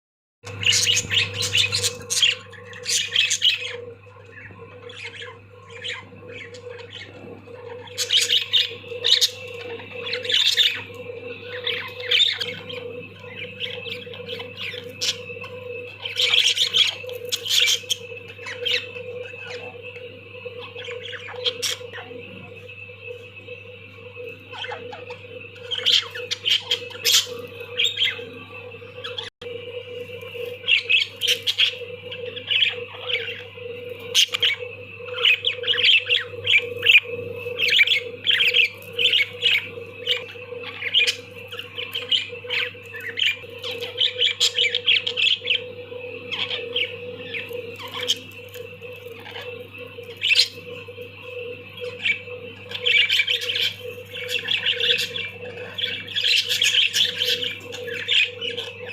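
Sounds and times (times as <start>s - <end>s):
steady low hum: 0.4s - 58.9s
budgerigars chattering: 0.5s - 19.9s, 34.1s - 45.6s, 51.8s - 58.9s.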